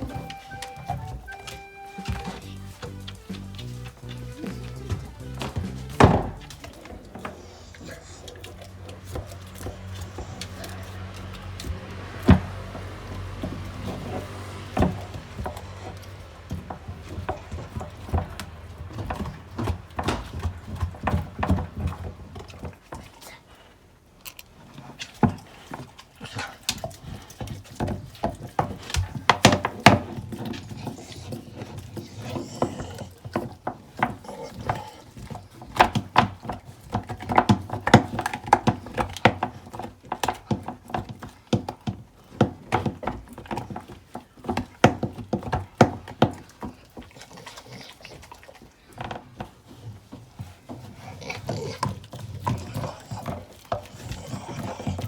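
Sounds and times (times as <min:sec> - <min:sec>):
dog gnawing on a bone: 0:00.0 - 0:55.0.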